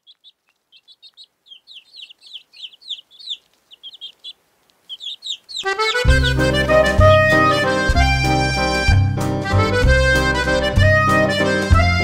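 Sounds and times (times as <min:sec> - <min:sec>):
small birds chirping: 0:00.0 - 0:07.6
music with held notes: 0:05.7 - 0:12.0.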